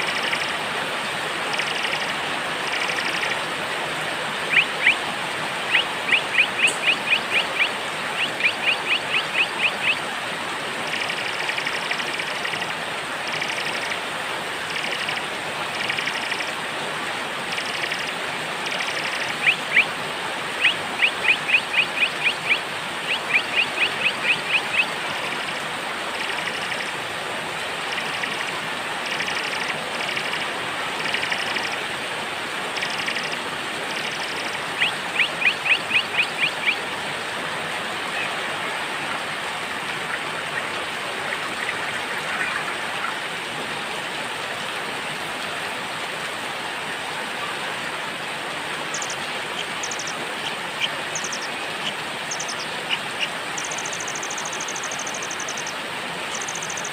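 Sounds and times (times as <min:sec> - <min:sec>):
steady rain: 0:00.0 - 0:56.9
songbirds chirping: 0:04.4 - 0:10.0, 0:20.6 - 0:25.4, 0:32.8 - 0:36.9, 0:48.8 - 0:56.9.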